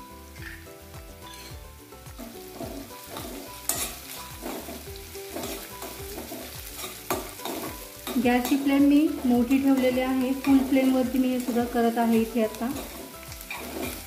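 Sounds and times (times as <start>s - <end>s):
food sizzling in hot oil: 0.0s - 14.0s
spatula scraping pan: 1.2s - 1.6s, 2.2s - 11.6s, 12.7s - 14.0s.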